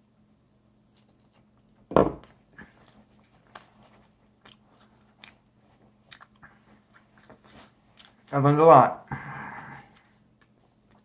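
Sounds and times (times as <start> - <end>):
person chewing pizza: 0.9 - 1.7, 2.3 - 8.4, 9.2 - 11.0
loud thump: 1.9 - 2.2.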